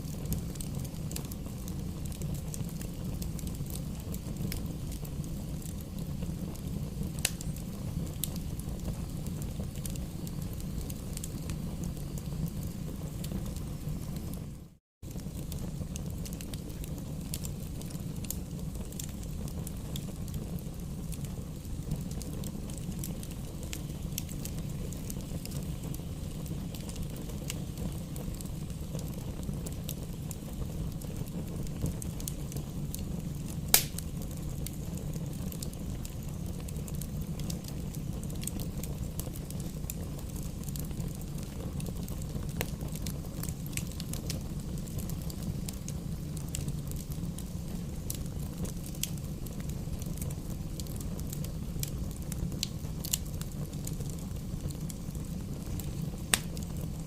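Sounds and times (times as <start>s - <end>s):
bonfire flames rumbling: 0.0s - 57.0s
fire crackling: 0.0s - 57.0s
loud sharp pop: 33.7s - 34.0s.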